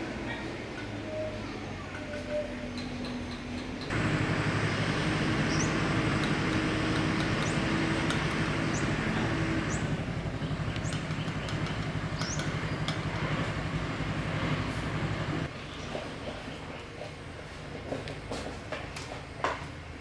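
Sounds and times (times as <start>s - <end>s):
machine humming and rumbling: 3.8s - 15.5s.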